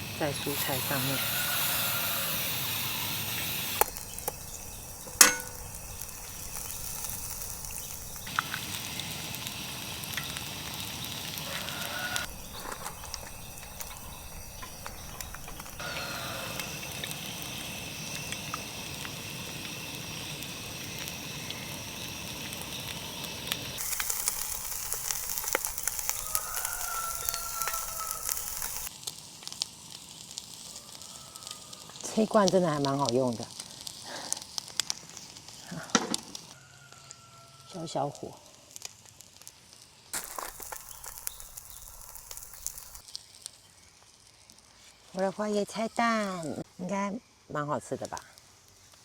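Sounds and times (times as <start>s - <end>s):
food sizzling in oil: 0.0s - 47.4s.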